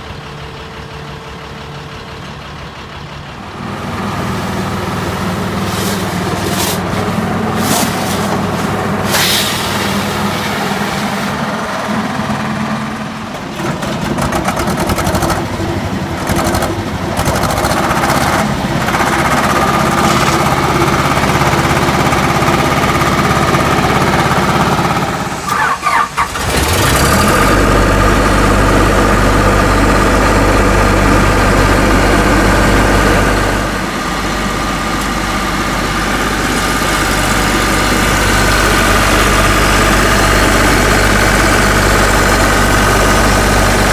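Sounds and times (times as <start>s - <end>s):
deep engine idle: 0.0s - 13.5s, 14.5s - 43.9s
truck engine running: 0.0s - 43.9s
engine starting: 25.4s - 27.5s.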